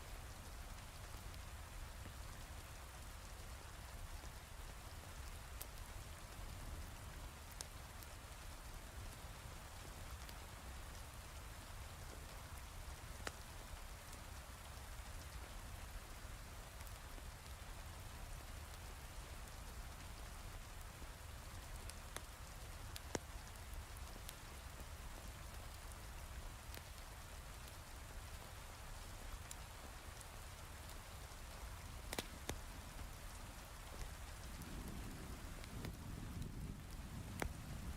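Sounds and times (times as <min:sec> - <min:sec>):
wood fire crackling: 0:00.2 - 0:37.9
heavy rain falling: 0:20.6 - 0:37.9.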